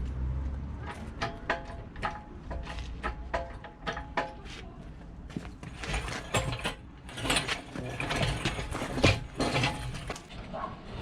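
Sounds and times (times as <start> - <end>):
metallic clicking and clanking of tools: 0.9 - 4.4.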